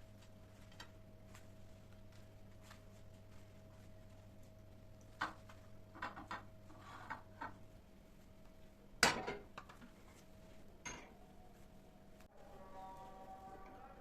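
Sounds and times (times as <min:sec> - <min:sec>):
loud dish clatter: 0:09.0 - 0:09.5
dishes and cutlery clinking: 0:10.8 - 0:11.2.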